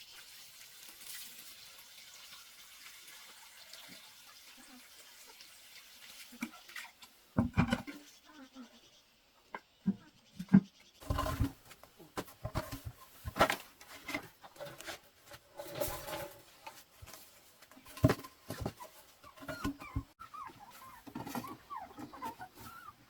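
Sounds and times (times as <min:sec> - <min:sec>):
knocks and rustling: 0:07.4 - 0:08.0, 0:09.6 - 0:22.9
small animals chirping: 0:19.3 - 0:23.0.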